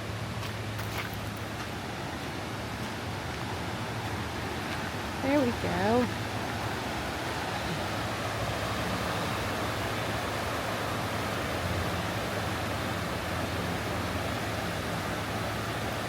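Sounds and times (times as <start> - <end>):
road noise inside moving car: 3.6 - 16.0.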